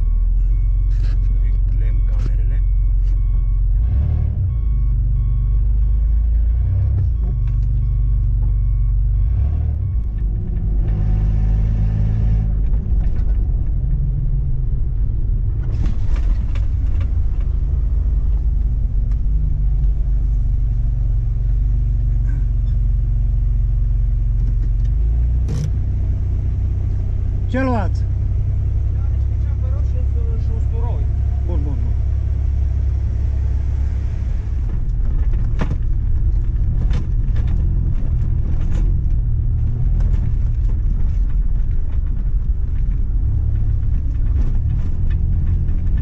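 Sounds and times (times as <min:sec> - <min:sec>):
faint repeating beep: 0:00.0 - 0:10.3
vehicle engine rumble from cabin: 0:00.0 - 0:46.0.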